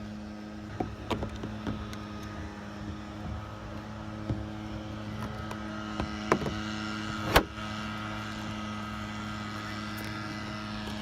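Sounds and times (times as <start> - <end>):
motor drone: 0.0 - 11.0
sharp clicks and knocks: 0.7 - 2.4.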